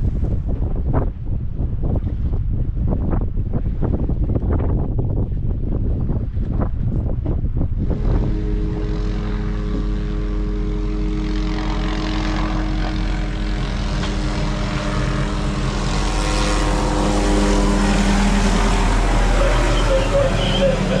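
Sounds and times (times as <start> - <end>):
helicopter rotor and turbine drone: 7.9 - 21.0.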